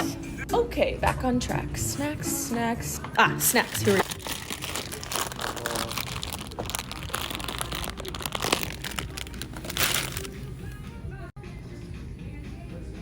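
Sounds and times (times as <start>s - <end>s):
background music: 0.0s - 13.0s
plastic packaging crinkling: 3.6s - 10.5s.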